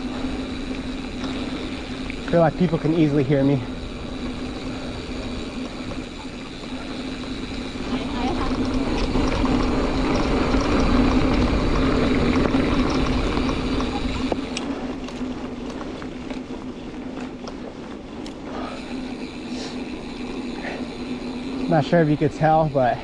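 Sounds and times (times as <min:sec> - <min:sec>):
bike freehub buzzing: 0:00.0 - 0:23.0
light ticks: 0:13.8 - 0:16.5, 0:18.2 - 0:19.0.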